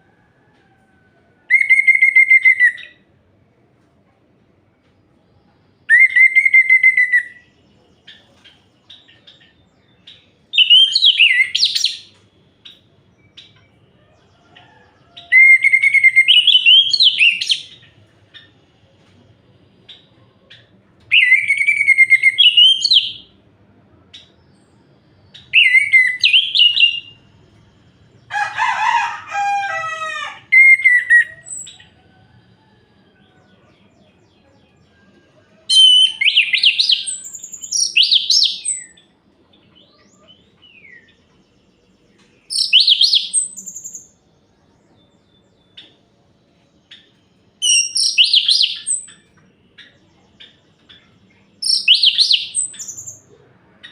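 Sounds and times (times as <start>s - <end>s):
thrush singing whistled notes: 1.5s - 3.0s, 5.9s - 7.5s, 10.5s - 13.6s, 15.3s - 17.9s, 21.1s - 23.3s, 25.4s - 27.2s, 30.5s - 31.9s, 35.7s - 39.0s, 42.5s - 44.2s, 47.5s - 49.2s, 51.6s - 53.0s.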